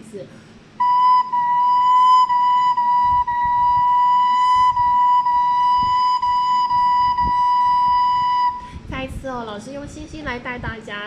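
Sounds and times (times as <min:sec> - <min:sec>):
recorder playing repeated high notes: 0:00.8 - 0:08.7.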